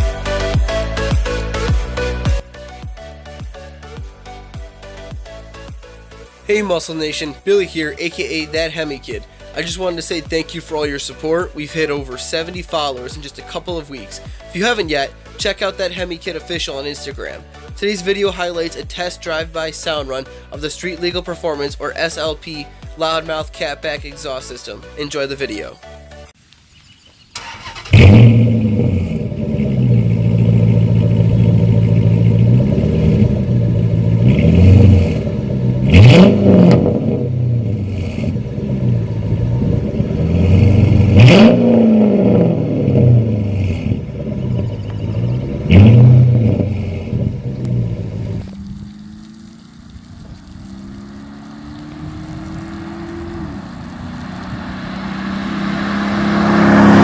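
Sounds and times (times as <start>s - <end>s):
car engine revving and accelerating: 27.4s - 57.0s.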